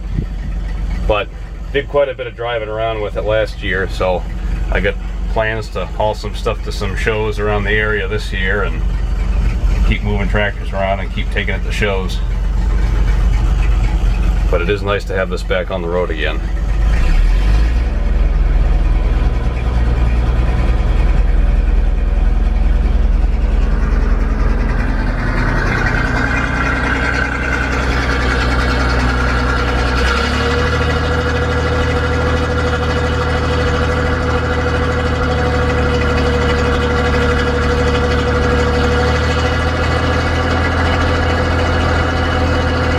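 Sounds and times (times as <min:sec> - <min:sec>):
steady whine: 0:00.0 - 0:42.9
truck engine running: 0:00.0 - 0:42.9.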